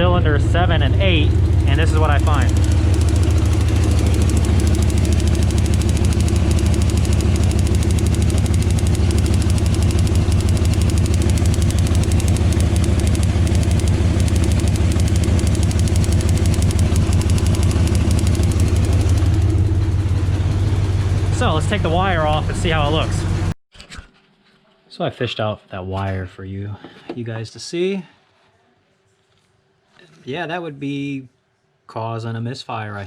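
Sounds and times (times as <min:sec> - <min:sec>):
engine idling roughly with ticking: 0:00.0 - 0:23.6.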